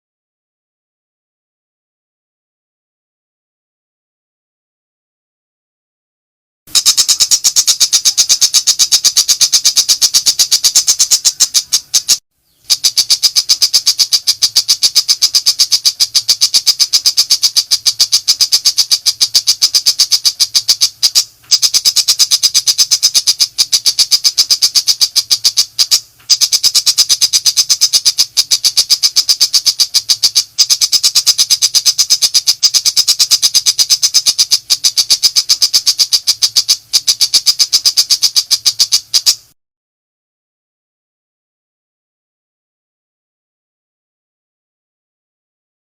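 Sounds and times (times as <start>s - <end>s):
bird harsh rattling chatter: 6.7s - 39.4s.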